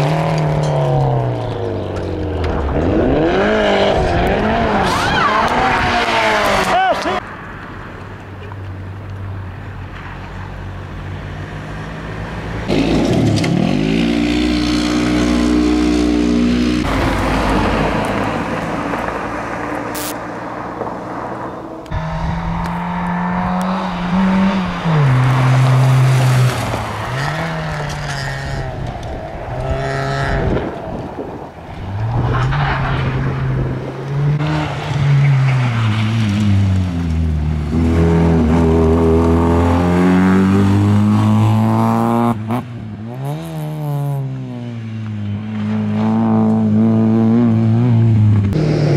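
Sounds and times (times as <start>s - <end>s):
cars driving past revving: 9.9s - 48.9s.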